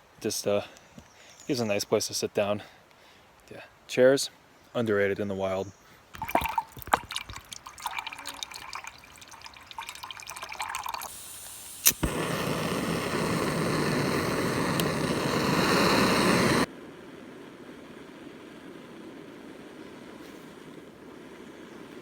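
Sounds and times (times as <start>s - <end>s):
water dripping and trickling: 6.2s - 11.6s
water pouring: 6.2s - 16.7s.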